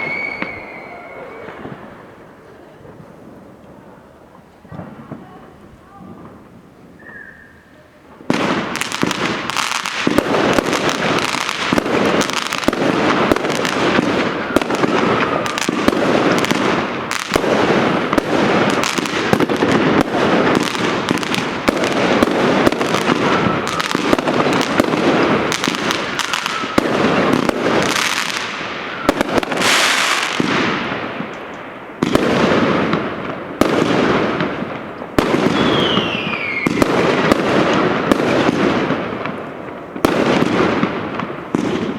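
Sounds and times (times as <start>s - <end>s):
falling fireworks whistles: 0.0s - 2.5s, 6.1s - 30.8s, 35.2s - 39.1s
fireworks bangs and crackles: 0.0s - 41.9s.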